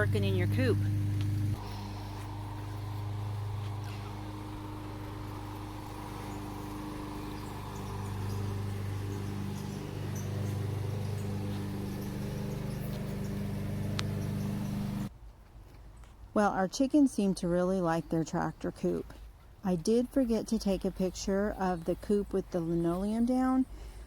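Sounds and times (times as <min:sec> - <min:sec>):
lawnmower engine running: 0:00.0 - 0:15.1.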